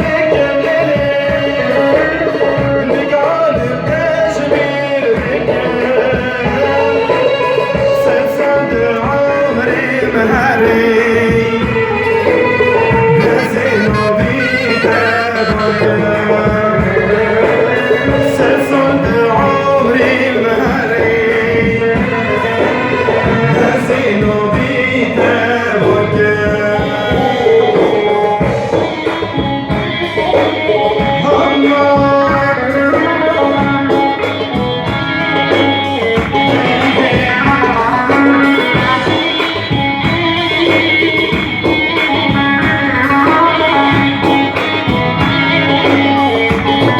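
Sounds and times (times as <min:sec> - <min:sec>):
light percussion: 0:11.0 - 0:16.4, 0:28.0 - 0:46.9
person singing: 0:13.1 - 0:16.4.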